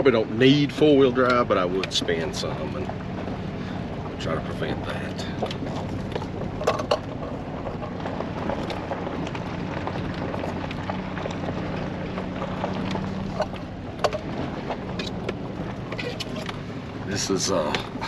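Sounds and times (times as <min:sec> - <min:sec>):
truck engine drone: 0:00.0 - 0:18.0
tyres on dirt: 0:00.0 - 0:18.0
knocks and rattles: 0:01.2 - 0:16.8.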